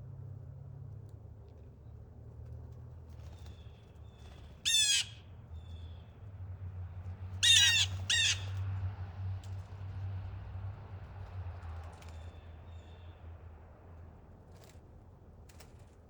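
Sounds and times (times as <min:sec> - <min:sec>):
blue jays harsh jeer calls: 0:04.7 - 0:05.1, 0:07.4 - 0:08.5.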